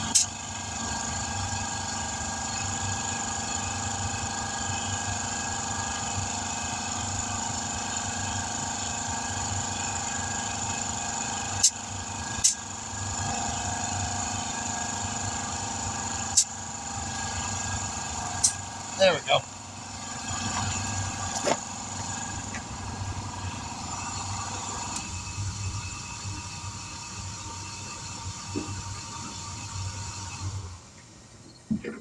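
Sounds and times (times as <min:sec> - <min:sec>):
machine hum: 0:07.1 - 0:32.0.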